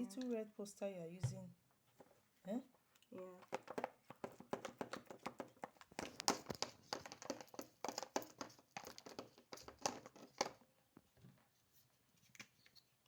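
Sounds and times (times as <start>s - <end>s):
plastic containers clicking and crinkling: 3.4s - 11.4s.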